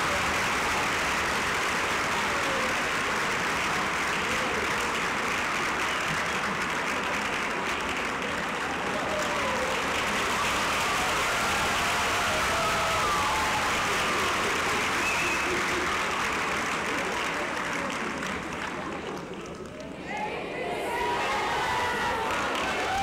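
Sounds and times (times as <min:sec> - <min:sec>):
audience applauding: 0:00.0 - 0:23.0
voices: 0:07.1 - 0:23.0.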